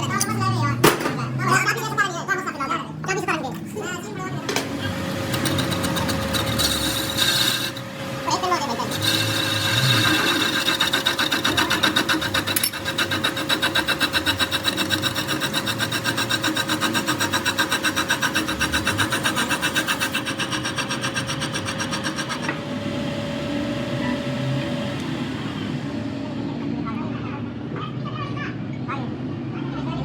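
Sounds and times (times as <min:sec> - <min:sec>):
steady hum: 0:00.0 - 0:27.8
metal rasping strokes: 0:04.8 - 0:22.6.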